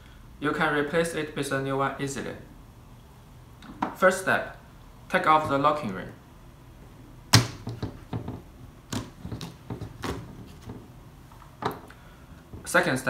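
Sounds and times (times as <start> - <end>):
sharp clicks and knocks: 7.3 - 12.7.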